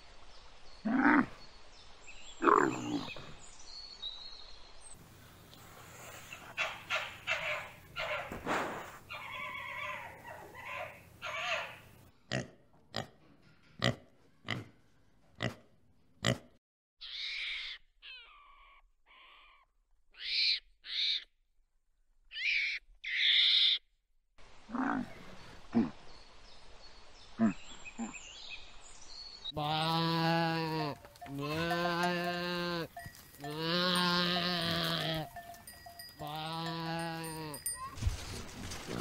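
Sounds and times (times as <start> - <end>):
pig grunting: 2.4 - 3.3, 24.7 - 26.0
monkey high-pitched calls: 9.1 - 11.8, 17.0 - 19.6
goat bleating: 29.6 - 38.0.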